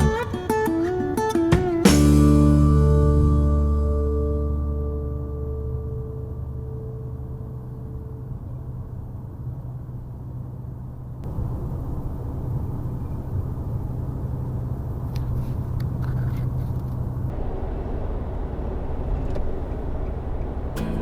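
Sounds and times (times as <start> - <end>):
vehicle engine hum: 3.2 - 21.0
road noise: 17.3 - 21.0.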